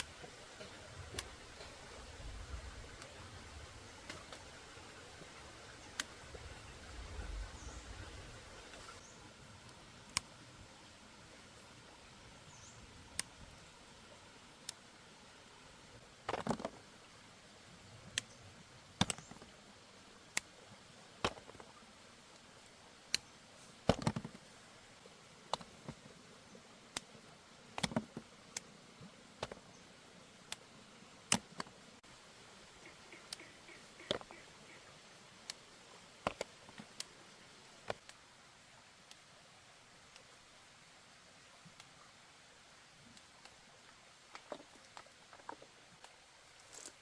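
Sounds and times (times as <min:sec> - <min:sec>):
faint steady hiss: 0:00.0 - 0:47.0.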